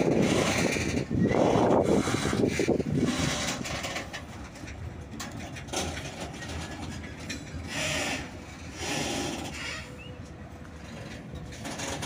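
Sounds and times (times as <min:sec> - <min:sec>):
clicks over rail joints: 0:00.0 - 0:12.0
freight wagon wheels rumbling: 0:00.0 - 0:12.0.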